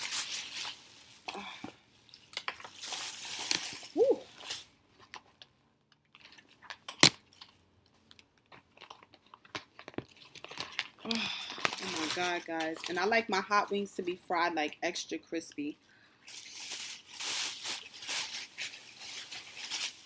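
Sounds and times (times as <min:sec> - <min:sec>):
person humming: 0:04.0 - 0:04.3.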